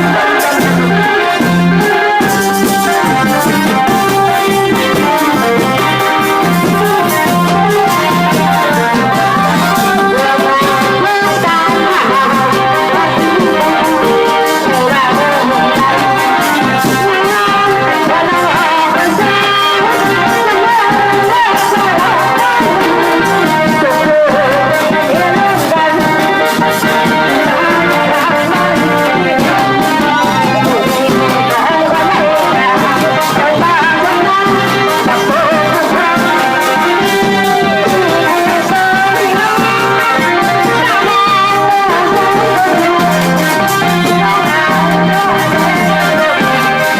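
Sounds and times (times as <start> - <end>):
brass band playing: 0.0 - 46.9.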